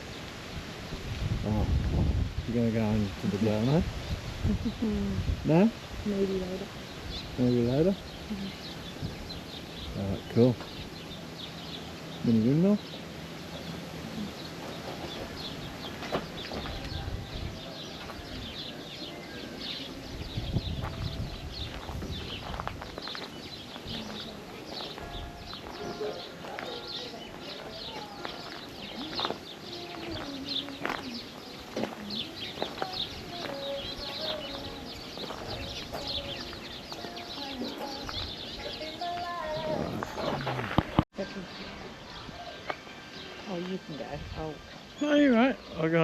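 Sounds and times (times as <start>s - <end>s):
low wind rumble: 0.0s - 25.8s, 39.5s - 45.8s
low steady bird calls: 0.0s - 46.0s
small birds chirping: 0.0s - 46.0s.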